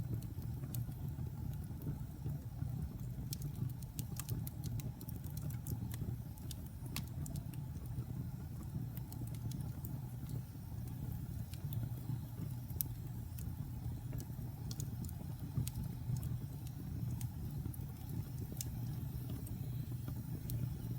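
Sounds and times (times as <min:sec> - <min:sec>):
wood fire crackling: 0:00.0 - 0:20.9.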